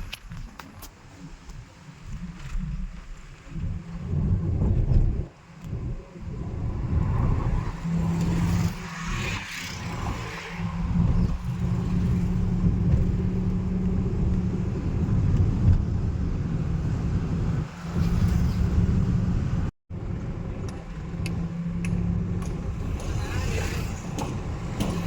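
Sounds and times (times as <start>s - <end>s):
car engine and road noise: 0.0s - 25.0s
traffic passing: 6.3s - 25.0s.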